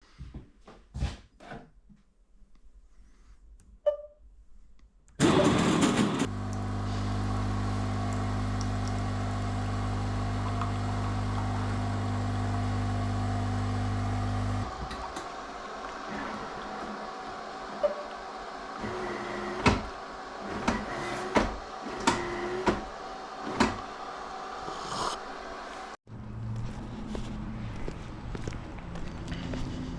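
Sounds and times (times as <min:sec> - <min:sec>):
engine starting and humming: 0:05.2 - 0:15.4.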